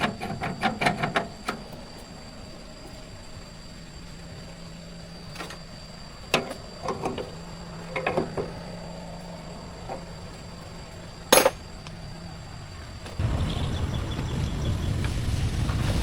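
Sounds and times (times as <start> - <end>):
steady low hum: 0.0 - 16.0
metal tools clanking: 11.3 - 11.9.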